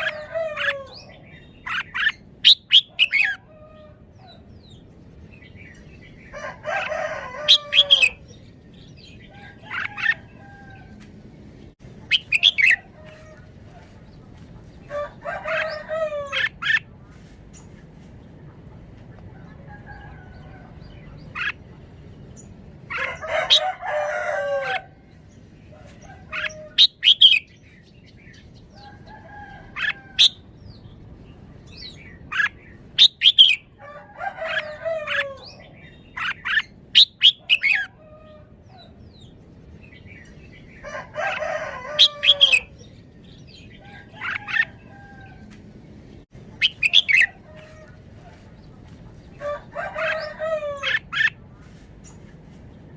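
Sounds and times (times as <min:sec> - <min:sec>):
rooster crowing: 0:00.0 - 0:01.2, 0:06.3 - 0:08.2, 0:14.9 - 0:16.6, 0:22.9 - 0:25.0, 0:33.7 - 0:35.6, 0:40.8 - 0:42.8, 0:49.4 - 0:51.2.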